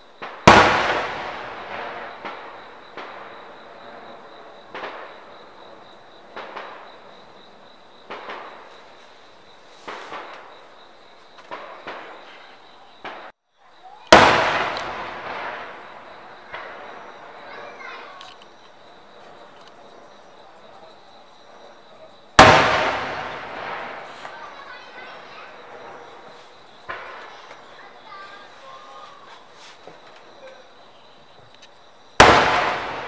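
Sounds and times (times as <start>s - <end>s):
smaller firework bangs: 0.0s - 10.7s, 11.3s - 13.4s, 14.0s - 18.2s, 22.3s - 28.5s, 32.1s - 33.0s
fireworks booming and crackling: 0.0s - 20.1s, 20.7s - 30.5s, 32.1s - 33.0s.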